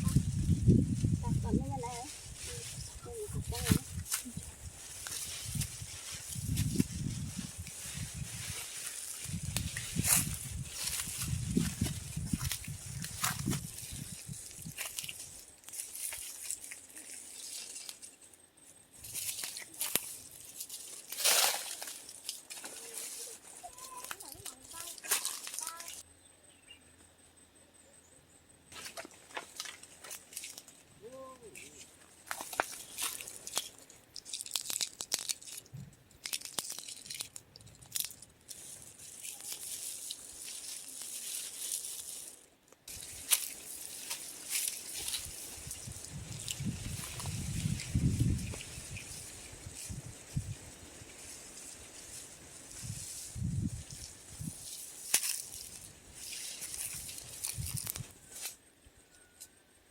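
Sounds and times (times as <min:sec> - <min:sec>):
rustling and crinkling: 0:00.0 - 0:26.0, 0:28.7 - 0:58.6
brittle things clicking and rattling: 0:28.8 - 0:30.8, 0:31.6 - 0:50.0.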